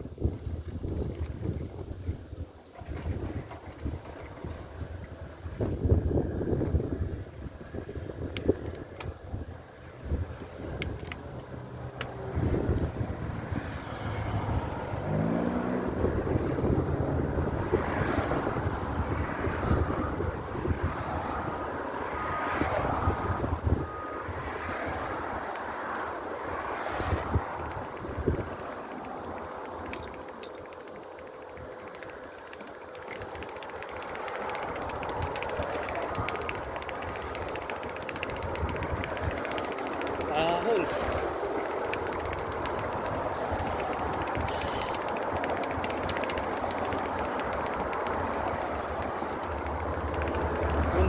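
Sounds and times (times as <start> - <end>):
wind noise on microphone: 0.0 - 51.0
road traffic rumbling past: 9.2 - 51.0
vehicle engine accelerating: 11.4 - 29.3, 34.3 - 51.0
fast fine ticking: 30.7 - 51.0.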